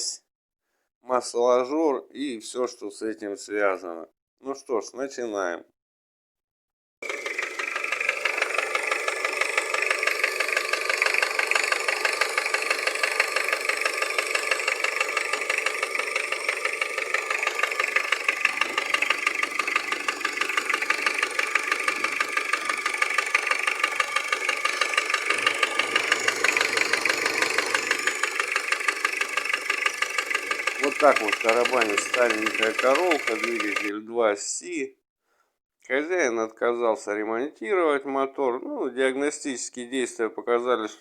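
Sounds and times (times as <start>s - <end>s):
diesel engine idling with knock: 7.0s - 33.9s.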